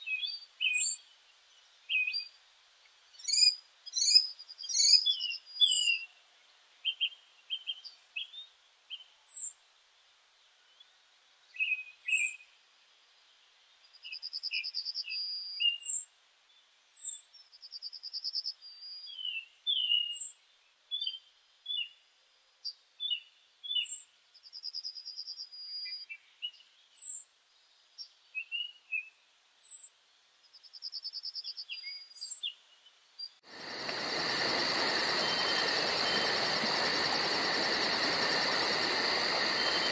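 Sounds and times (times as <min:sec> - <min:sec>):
lower bird chirps: 0:00.0 - 0:02.4, 0:03.1 - 0:06.2, 0:06.8 - 0:09.6, 0:10.6 - 0:12.6, 0:13.8 - 0:39.9
loud steady hiss: 0:33.0 - 0:39.9.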